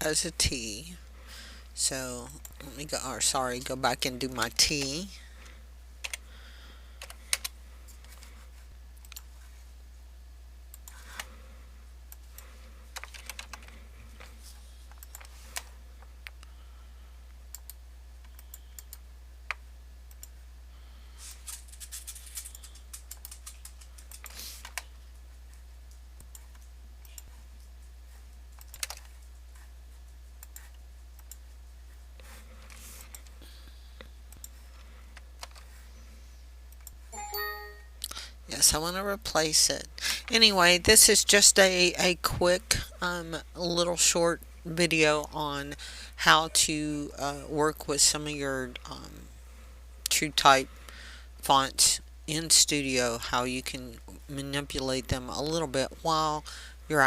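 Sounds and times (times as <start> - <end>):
steady low hum: 0.0 - 57.0
computer keyboard keystrokes: 6.0 - 6.2, 7.0 - 8.2, 13.0 - 13.8, 14.9 - 15.7, 21.5 - 24.9, 28.5 - 29.3, 35.4 - 35.7.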